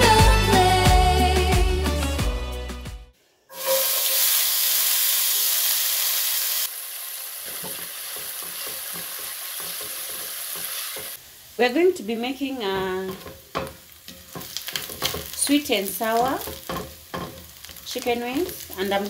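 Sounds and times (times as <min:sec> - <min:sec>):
onions sizzling in hot oil: 0:03.5 - 0:19.0.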